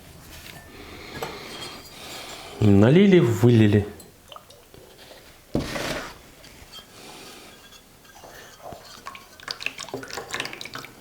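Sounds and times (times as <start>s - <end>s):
liquid glaze pouring: 8.0s - 11.0s.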